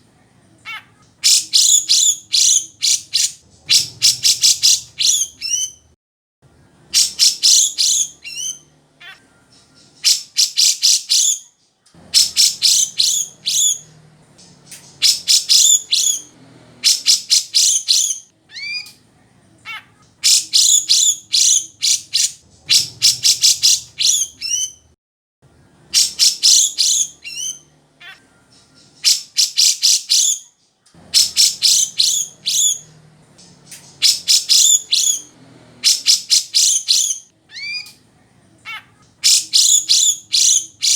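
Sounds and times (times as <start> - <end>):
bird singing rapid high notes: 0.7 - 5.9, 6.9 - 11.5, 12.1 - 18.9, 19.7 - 24.9, 25.9 - 38.0, 38.7 - 40.9.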